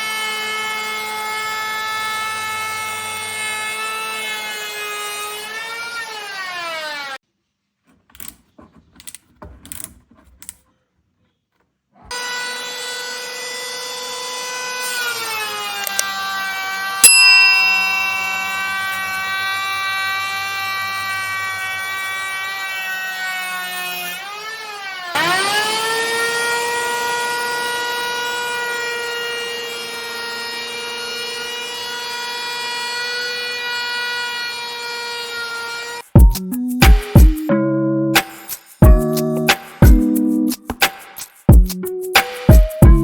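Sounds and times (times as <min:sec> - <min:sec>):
electric planer whining: 0:00.0 - 0:07.2, 0:12.1 - 0:36.1.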